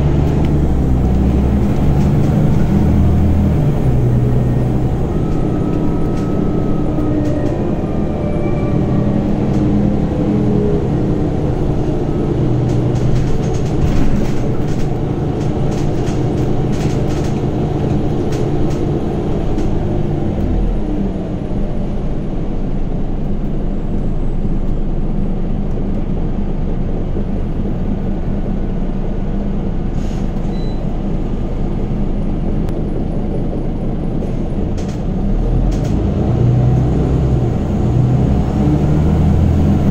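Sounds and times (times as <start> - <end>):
bus diesel engine running: 0.0 - 39.9
rattles and clicks: 11.7 - 20.5, 34.2 - 36.1.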